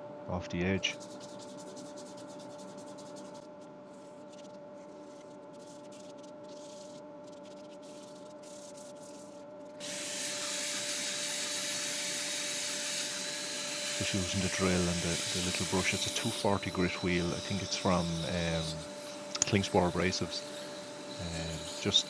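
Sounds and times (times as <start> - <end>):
sandpaper rubbing wood: 0.9 - 22.0
wood lathe humming: 9.8 - 22.0.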